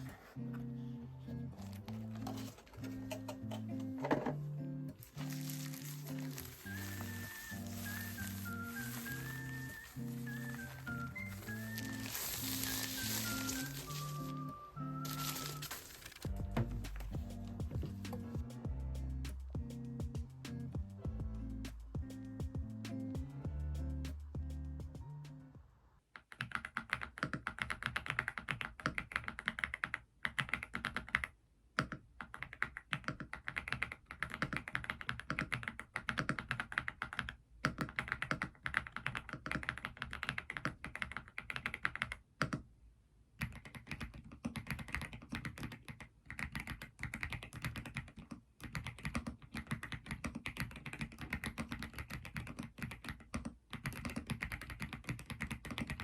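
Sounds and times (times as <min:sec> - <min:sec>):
mechanical keyboard typing: 0:26.2 - 0:42.6, 0:43.4 - 0:56.0.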